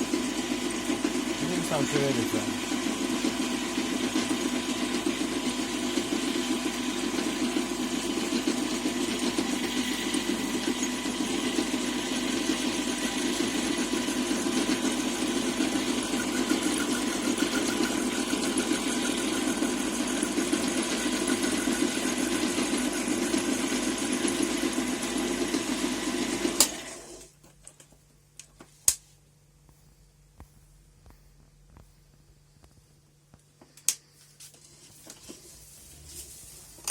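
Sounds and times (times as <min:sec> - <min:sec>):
lathe motor humming: 0:00.0 - 0:27.2.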